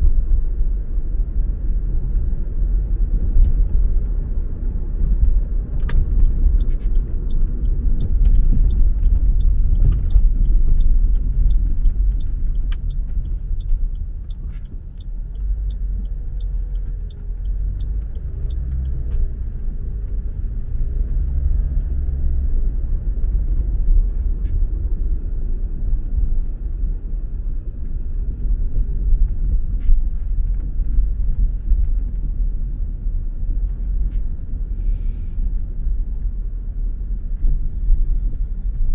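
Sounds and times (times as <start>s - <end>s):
car engine and tyre rumble: 0.0s - 38.9s
light ticking: 5.8s - 20.5s.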